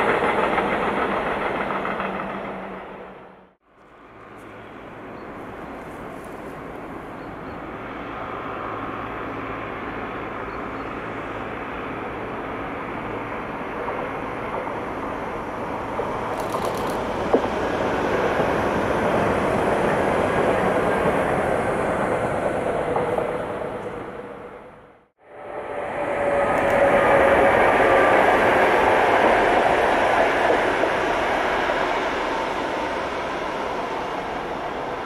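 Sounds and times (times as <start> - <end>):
electric train passing on rails: 0.0 - 35.0
sharp click: 16.4 - 17.0.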